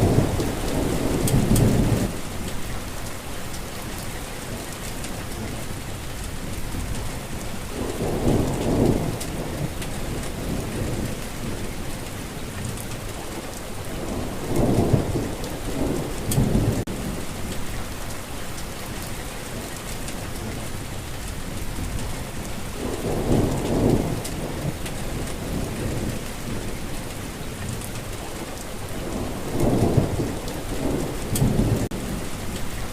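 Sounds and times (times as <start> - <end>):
thunder rumbling: 0.0 - 18.1, 18.9 - 32.9
steady rain falling: 0.0 - 32.9.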